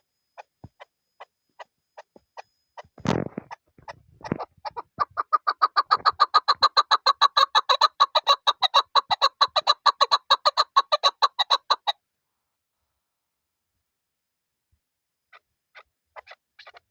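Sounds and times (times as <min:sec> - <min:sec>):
partridge clucking call: 0:03.4 - 0:11.9.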